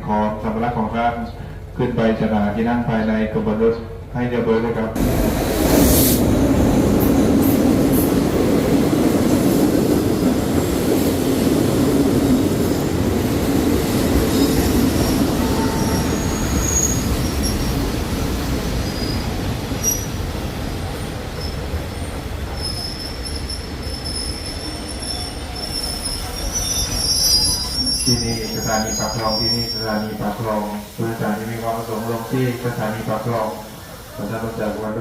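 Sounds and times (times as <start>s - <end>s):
train rumbling on rails: 0.0s - 35.0s
wheel squeals: 14.4s - 17.8s, 21.4s - 30.2s.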